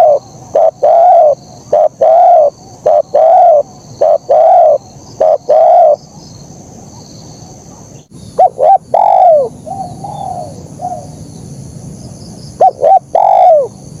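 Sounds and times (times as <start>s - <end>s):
dove cooing: 0.0s - 6.0s, 8.4s - 11.2s, 12.6s - 13.8s.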